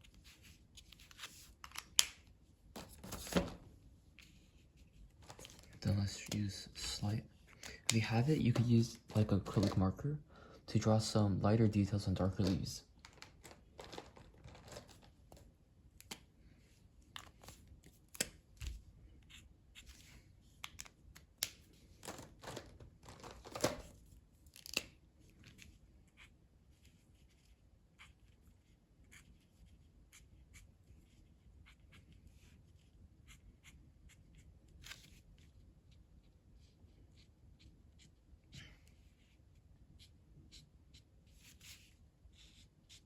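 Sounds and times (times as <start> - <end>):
pen scratching on paper: 19.2 - 20.1, 26.0 - 34.5.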